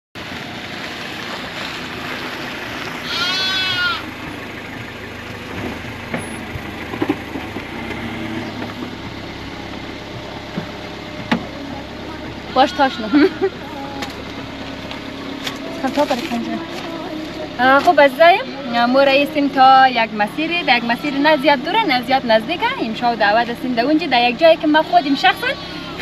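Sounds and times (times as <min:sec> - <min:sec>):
car engine idling: 0:00.2 - 0:26.0
animal bleat: 0:03.0 - 0:04.1, 0:12.4 - 0:14.1, 0:18.2 - 0:18.9, 0:20.7 - 0:21.7, 0:24.8 - 0:26.0.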